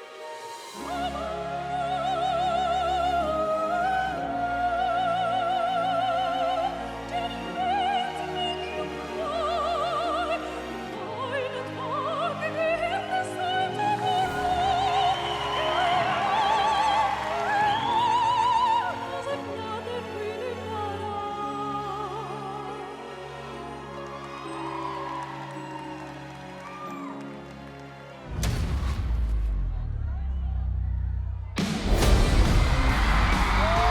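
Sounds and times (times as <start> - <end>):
woman singing operatically: 0.8 - 23.6.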